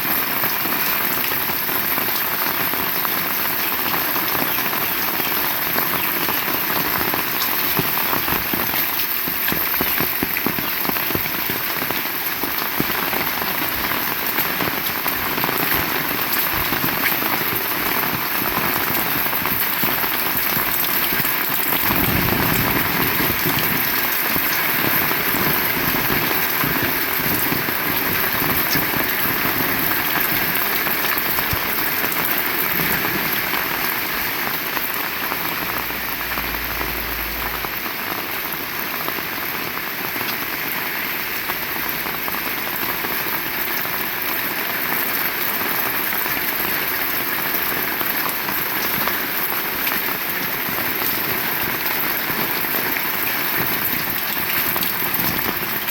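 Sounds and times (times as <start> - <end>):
heavy rain pouring: 0.0 - 55.9
low rumble: 35.1 - 38.8.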